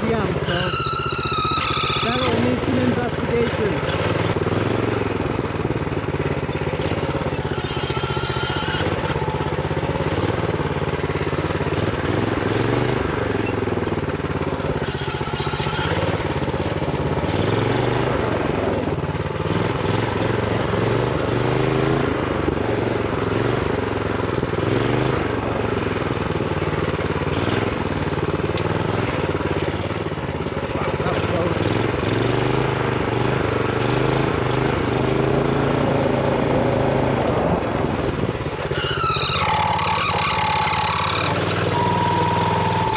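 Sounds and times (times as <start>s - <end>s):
minibike engine revving: 0.0s - 42.9s
high squeaks: 0.3s - 2.6s, 6.3s - 9.5s, 13.2s - 16.2s, 18.7s - 19.2s, 22.7s - 23.1s, 38.2s - 42.9s.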